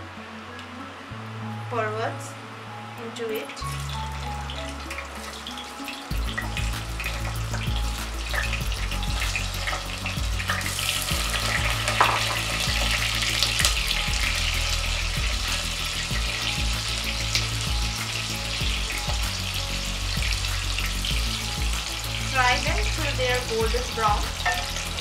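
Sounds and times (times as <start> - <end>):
gourds sizzling in hot oil: 1.8 - 25.0.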